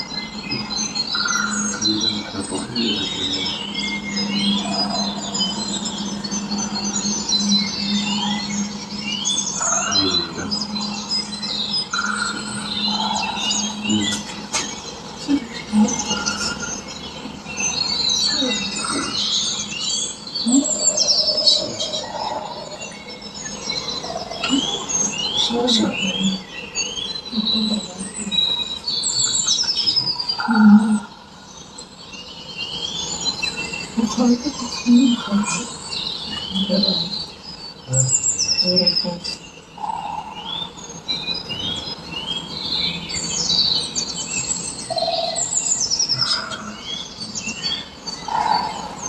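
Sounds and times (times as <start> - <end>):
short low bird calls: 0.0 - 31.5
birds chirping and twittering: 0.0 - 49.0
steady low hum: 0.0 - 49.0.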